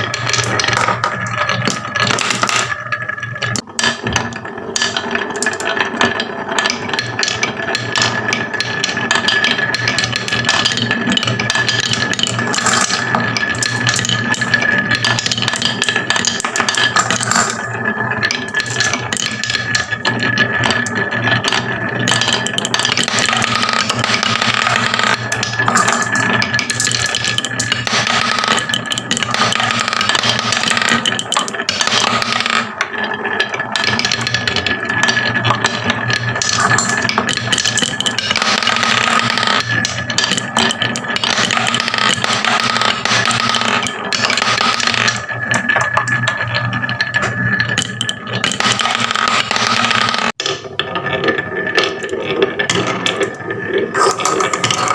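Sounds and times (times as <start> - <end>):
marbles clattering down a run: 0.0 - 54.9.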